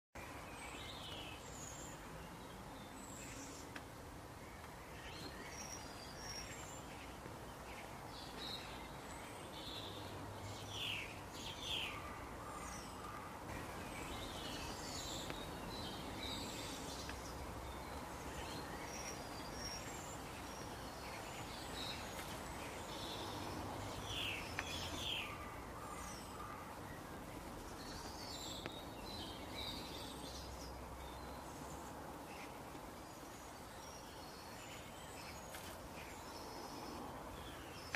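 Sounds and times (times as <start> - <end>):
outdoor background hiss: 0.2 - 37.9
small birds chirping: 0.2 - 37.9.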